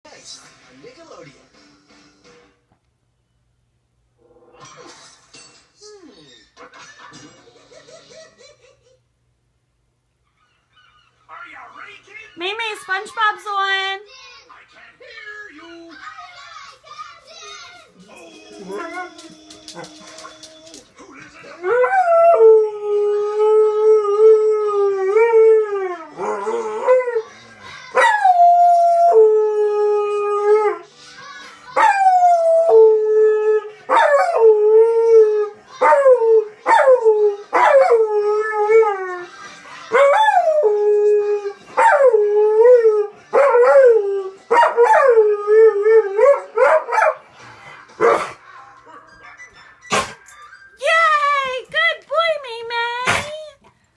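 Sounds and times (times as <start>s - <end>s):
dog howling: 18.1s - 20.8s.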